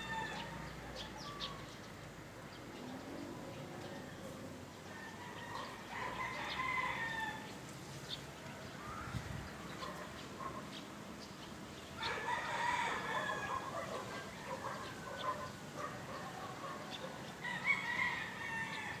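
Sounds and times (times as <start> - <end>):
rooster crowing: 0.0 - 1.4, 4.8 - 7.5, 12.0 - 13.8, 17.4 - 19.0.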